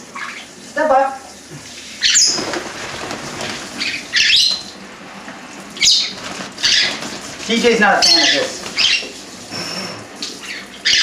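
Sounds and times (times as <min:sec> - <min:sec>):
water spraying in a sink: 0:00.0 - 0:11.0
parrot squawking: 0:00.1 - 0:00.5, 0:02.0 - 0:02.4, 0:03.7 - 0:04.8, 0:05.8 - 0:07.1, 0:07.8 - 0:11.0.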